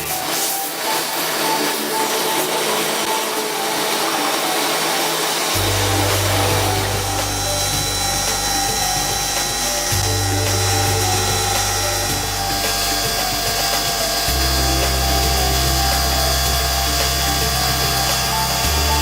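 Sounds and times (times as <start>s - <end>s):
background music with bass notes: 5.6s - 19.0s.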